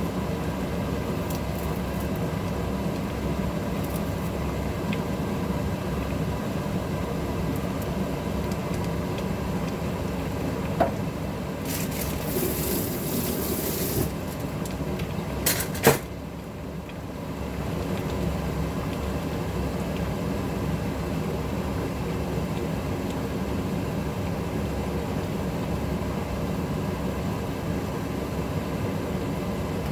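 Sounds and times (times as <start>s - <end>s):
stovetop low rumble: 0.0s - 29.9s
hiss: 11.7s - 14.2s.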